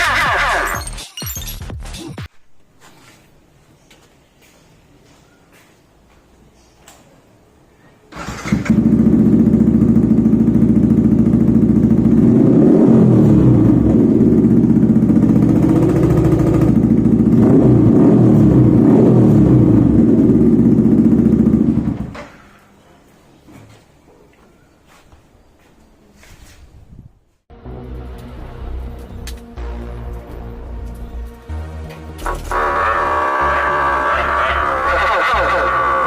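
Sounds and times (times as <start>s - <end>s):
motorcycle engine revving: 8.2s - 22.4s, 32.0s - 36.0s.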